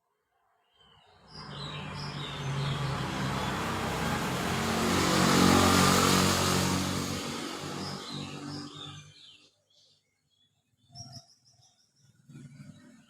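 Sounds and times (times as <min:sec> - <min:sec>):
vehicle passing by: 0:01.2 - 0:09.2.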